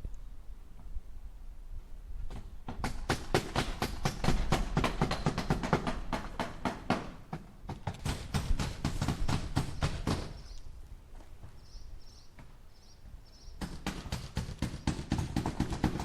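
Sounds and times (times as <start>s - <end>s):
hammer striking nails into wood: 2.7s - 10.4s, 13.6s - 16.0s.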